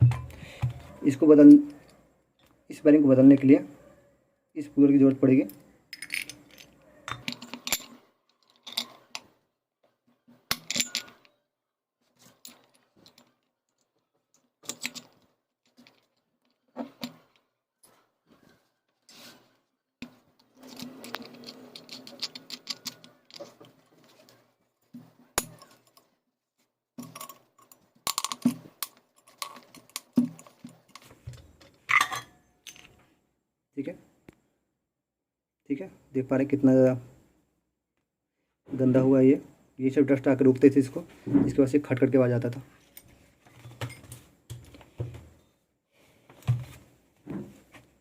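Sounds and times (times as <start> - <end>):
metal tools clinking and knocking: 5.5 - 9.3, 10.5 - 11.4, 14.6 - 17.4, 20.0 - 24.3, 27.0 - 33.0, 42.8 - 44.8.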